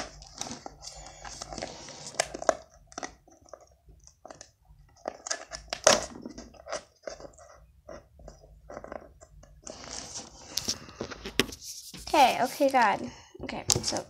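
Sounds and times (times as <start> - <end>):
packaging crinkling: 0.0 - 12.9.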